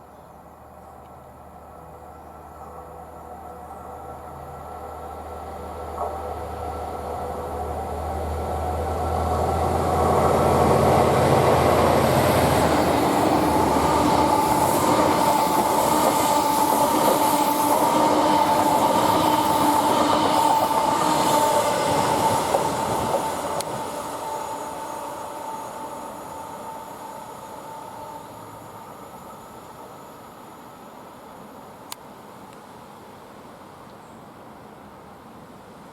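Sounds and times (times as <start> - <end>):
locomotive drone: 0.8 - 32.0
train wagons rolling: 10.1 - 24.5.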